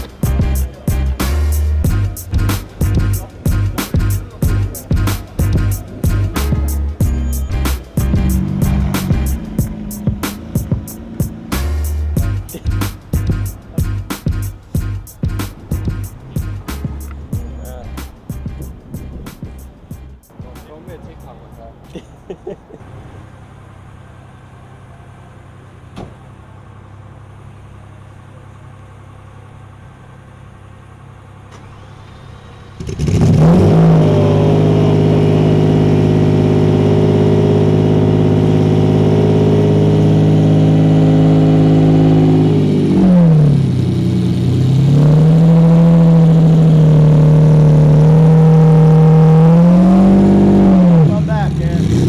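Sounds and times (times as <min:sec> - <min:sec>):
car engine idling and revving: 0:00.0 - 0:52.0.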